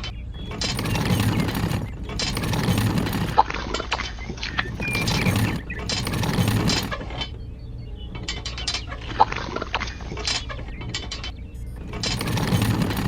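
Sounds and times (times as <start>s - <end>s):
mechanical rattling and clicking: 0.0s - 13.0s.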